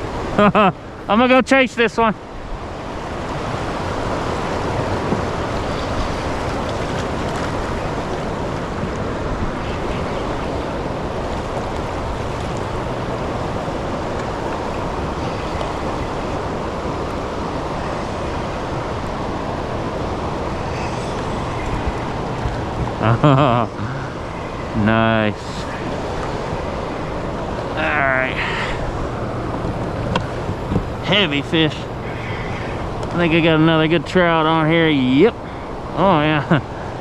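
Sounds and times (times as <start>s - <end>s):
fast-flowing river water rushing: 0.0s - 23.1s, 23.7s - 37.0s
wind noise on microphone: 2.3s - 24.8s, 28.8s - 31.0s.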